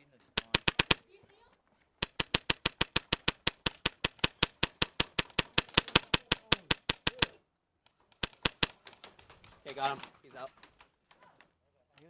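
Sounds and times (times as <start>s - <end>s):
airsoft gun rapid shots: 0.4s - 1.0s, 2.0s - 7.4s, 8.2s - 8.9s.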